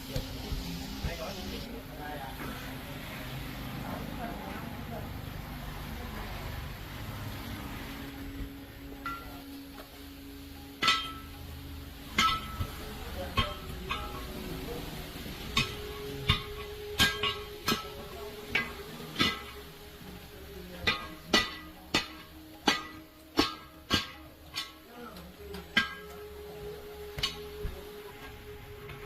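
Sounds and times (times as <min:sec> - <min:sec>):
hammer blows on metal: 0:10.7 - 0:14.5, 0:15.3 - 0:19.8, 0:20.8 - 0:24.9.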